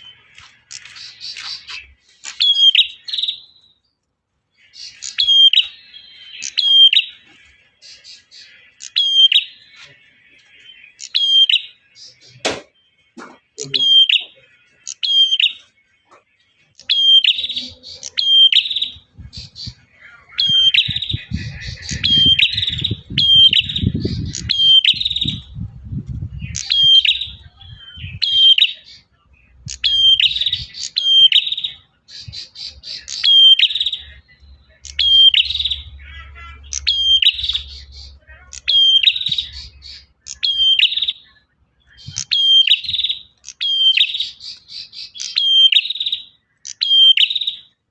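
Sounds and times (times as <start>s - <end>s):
bird singing sharp high notes: 0.0s - 3.9s, 4.6s - 16.0s, 16.7s - 47.8s
low rumbling noise: 19.0s - 28.2s.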